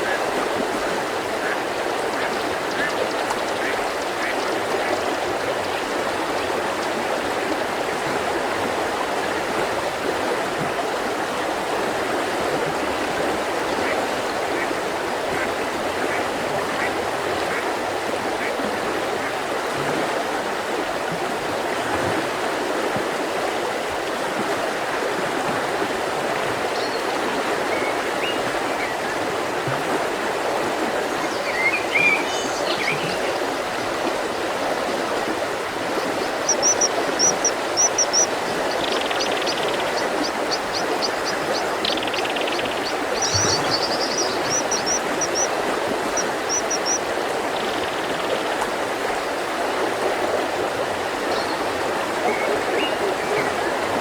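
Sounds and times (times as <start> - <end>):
river flowing: 0.0 - 54.0
birds singing: 31.2 - 33.4, 36.0 - 48.4.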